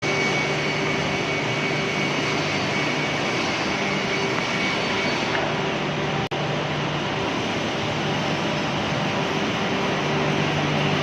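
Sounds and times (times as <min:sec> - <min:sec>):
wood moulding machine running: 0:00.0 - 0:11.0.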